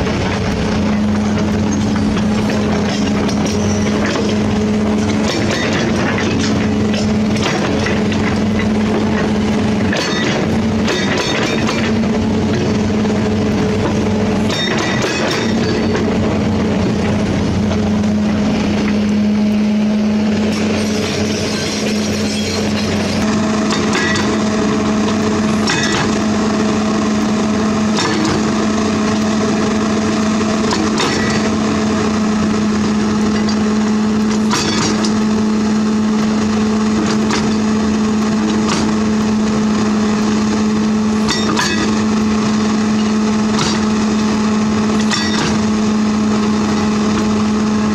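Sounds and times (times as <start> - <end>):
metal equipment clanks and knocks: 0.0 - 19.0, 20.5 - 26.4, 27.9 - 28.6, 30.7 - 31.6, 33.3 - 35.3, 36.9 - 37.8, 41.2 - 42.1, 43.0 - 44.3, 45.0 - 45.8
diesel engine running: 0.0 - 47.9.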